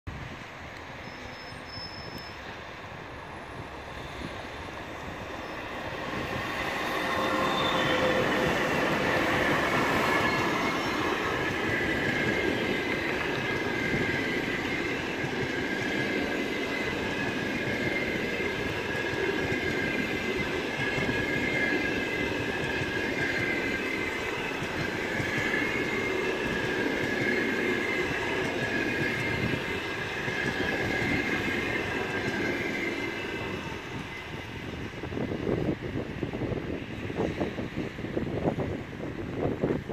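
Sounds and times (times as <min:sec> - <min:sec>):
train wheel clatter: 0:05.2 - 0:35.8.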